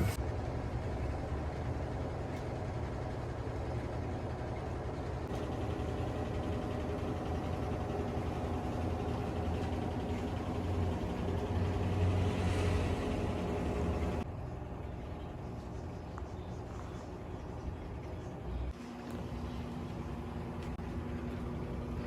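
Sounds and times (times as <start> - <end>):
motor humming: 0.0 - 0.2.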